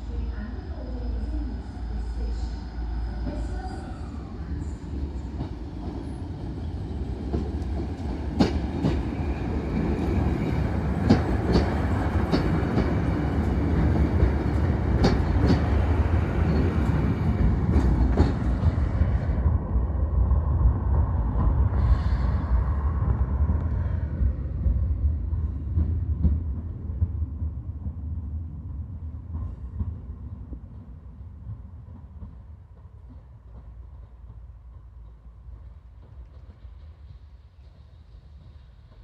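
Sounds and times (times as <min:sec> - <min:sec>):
diesel train rumbling past: 0:00.0 - 0:39.0.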